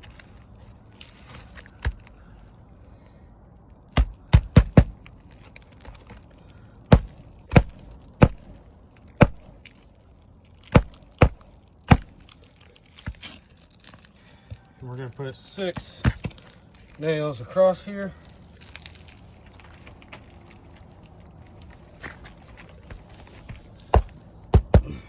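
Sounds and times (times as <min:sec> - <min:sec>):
hammer driving nails into shingle: 0:03.9 - 0:05.0, 0:06.9 - 0:08.6, 0:09.2 - 0:09.6, 0:10.6 - 0:12.2, 0:23.9 - 0:25.0.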